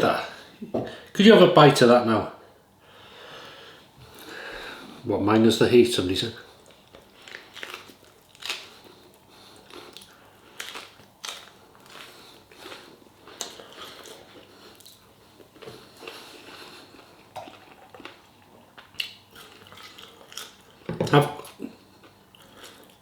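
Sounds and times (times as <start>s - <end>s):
chewing meat off ribs: 6.5s - 23.0s.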